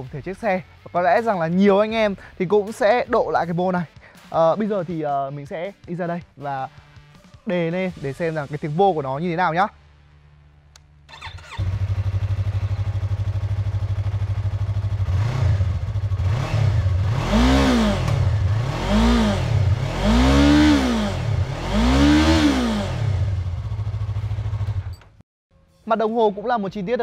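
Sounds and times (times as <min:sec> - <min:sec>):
motorcycle engine starter cranking: 0:11.1 - 0:12.6, 0:23.7 - 0:25.2
motorcycle engine idling and revving: 0:11.1 - 0:25.2.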